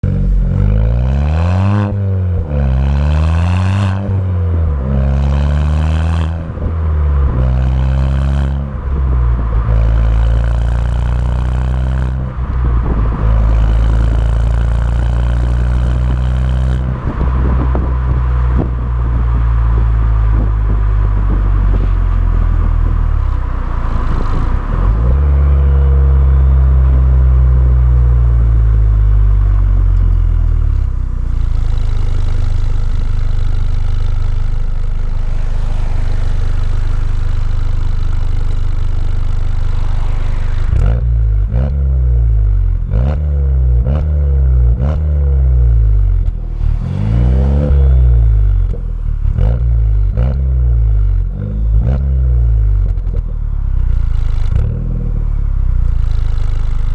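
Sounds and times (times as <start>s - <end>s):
car engine revving through exhaust: 0.0s - 56.9s.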